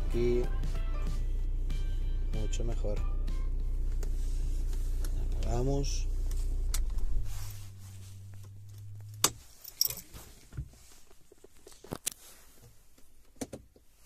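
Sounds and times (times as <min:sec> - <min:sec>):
car engine idling: 0:00.0 - 0:10.0
keys rattling: 0:09.6 - 0:10.1.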